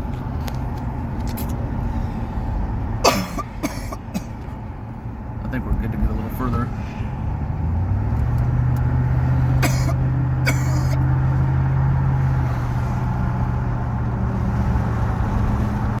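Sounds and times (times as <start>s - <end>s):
car engine hum: 0.0s - 16.0s
road noise: 0.0s - 16.0s.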